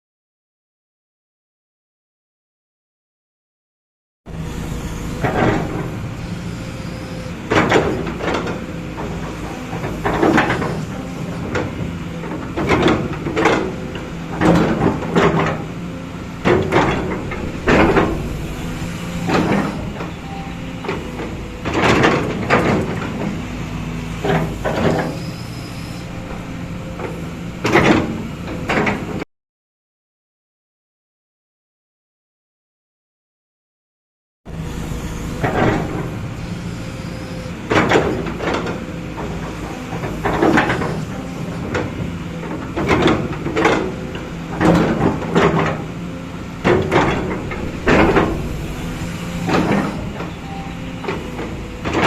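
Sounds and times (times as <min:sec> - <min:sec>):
excavator diesel engine droning: 0:04.3 - 0:29.2, 0:34.5 - 0:52.0
loud sharp clanking: 0:14.4 - 0:23.3, 0:44.6 - 0:52.0.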